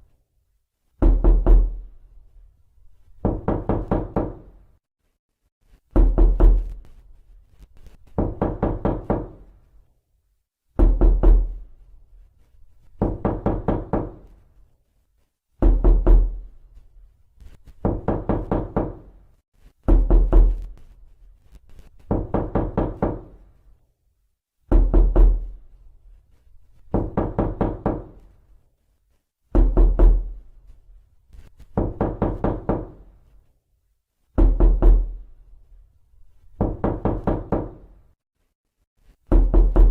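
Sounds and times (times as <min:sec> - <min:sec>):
knocking on a door: 0:01.0 - 0:01.8, 0:03.2 - 0:04.6, 0:05.9 - 0:06.8, 0:08.1 - 0:09.5, 0:10.8 - 0:11.6, 0:13.0 - 0:14.3, 0:15.6 - 0:16.4, 0:17.8 - 0:19.1, 0:19.8 - 0:20.7, 0:22.1 - 0:23.4, 0:24.7 - 0:25.6, 0:26.9 - 0:28.2, 0:29.5 - 0:30.4, 0:31.7 - 0:33.1, 0:34.4 - 0:35.2, 0:36.6 - 0:37.9, 0:39.3 - 0:39.9.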